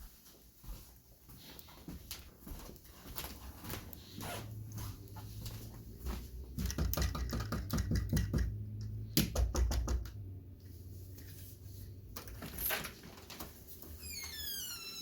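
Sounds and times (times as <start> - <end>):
clicks and taps: 6.6 - 10.2.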